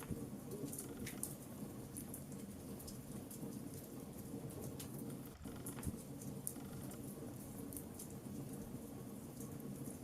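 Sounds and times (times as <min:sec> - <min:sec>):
wood fire crackling and popping: 0:00.0 - 0:10.0.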